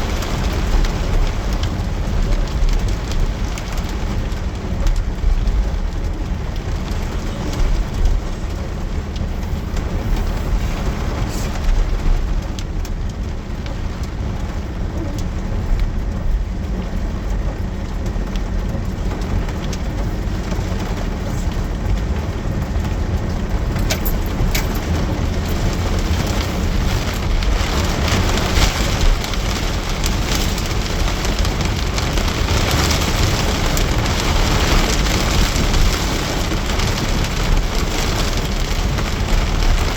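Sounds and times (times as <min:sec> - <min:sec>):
constant low rumble: 0:00.0 - 0:39.9
heavy rain falling: 0:00.0 - 0:39.9.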